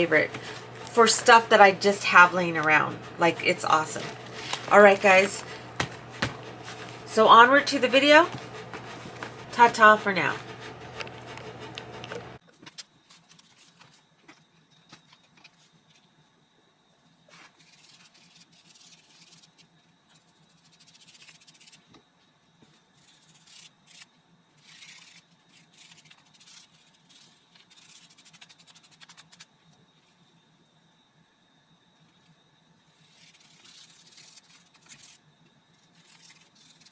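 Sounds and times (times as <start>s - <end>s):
low steady hum: 0.0s - 12.4s
paper rustling and clicking: 0.0s - 15.6s, 36.0s - 36.9s.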